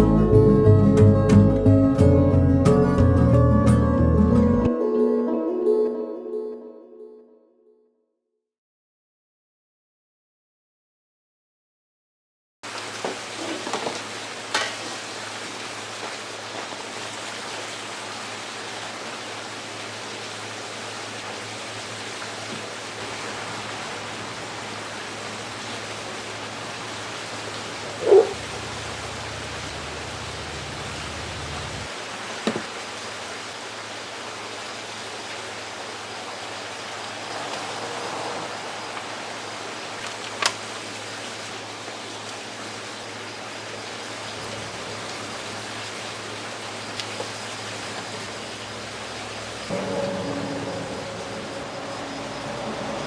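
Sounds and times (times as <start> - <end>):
steady rain hiss: 12.7 - 53.0.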